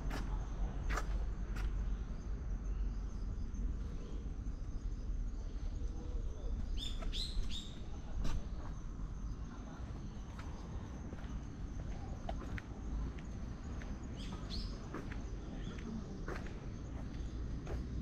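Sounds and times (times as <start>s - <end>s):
low outdoor rumble: 0.0s - 18.0s
bird chirping: 6.6s - 7.9s
footsteps on stone paving: 10.2s - 18.0s.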